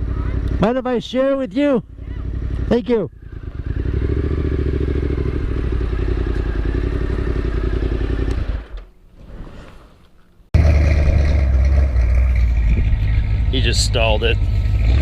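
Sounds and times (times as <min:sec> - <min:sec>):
vehicle engine idling: 0:10.6 - 0:15.0.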